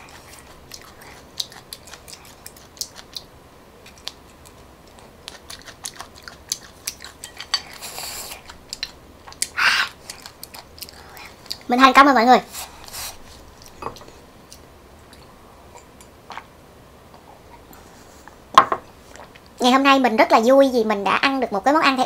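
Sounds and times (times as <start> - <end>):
wet chewing and mouth clicks: 0.0 - 11.7, 12.8 - 16.5
breathy hiss: 7.7 - 8.5, 9.5 - 10.2, 12.4 - 13.4.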